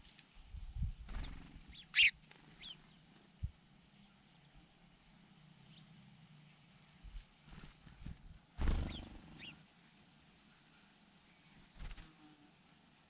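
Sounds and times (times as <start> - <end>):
small birds chirping: 1.0 - 4.7, 8.6 - 9.6
low rumbling flutter: 7.6 - 9.4.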